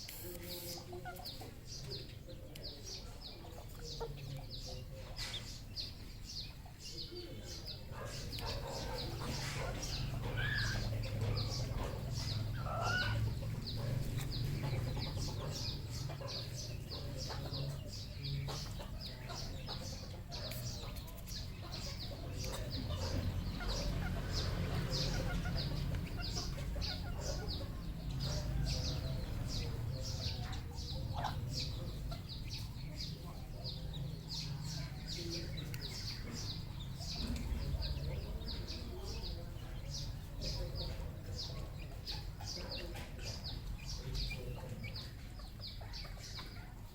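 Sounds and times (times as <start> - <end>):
junglefowl clucking and calling: 8.0 - 14.0.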